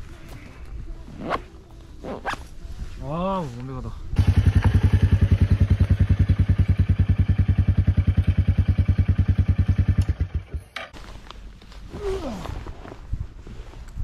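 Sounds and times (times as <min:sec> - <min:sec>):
motorcycle engine idling: 0:04.2 - 0:10.8.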